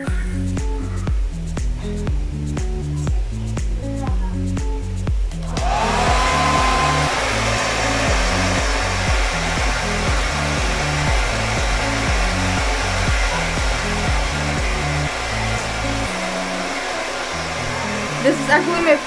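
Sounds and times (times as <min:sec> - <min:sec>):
background music with bass line: 0:00.0 - 0:19.0
hairdryer running: 0:05.4 - 0:19.0.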